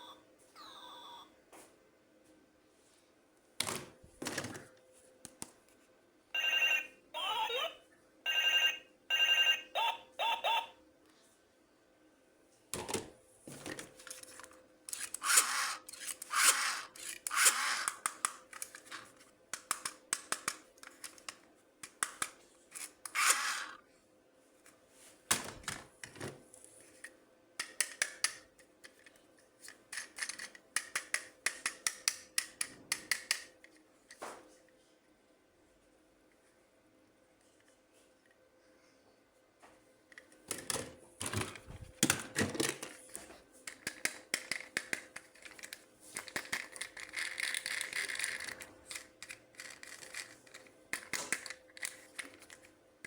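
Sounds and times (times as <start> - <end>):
electronic toy beeping tune: 0.0 - 1.3, 6.4 - 10.8.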